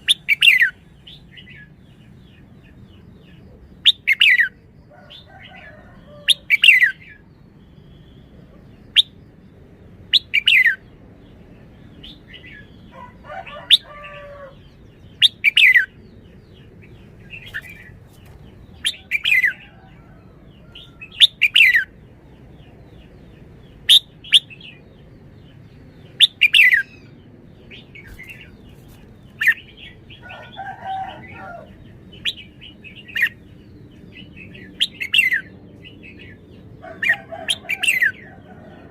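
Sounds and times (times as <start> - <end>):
bulbul singing: 0.0 - 5.2.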